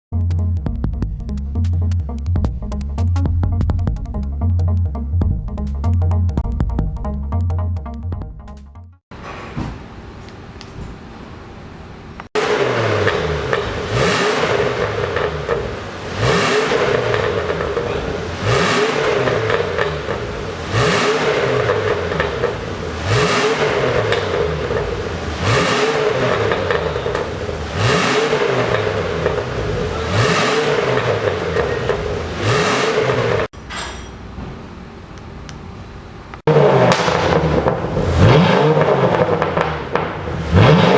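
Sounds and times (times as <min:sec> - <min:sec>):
pickup engine revving: 0:12.4 - 0:33.5, 0:36.5 - 0:40.9.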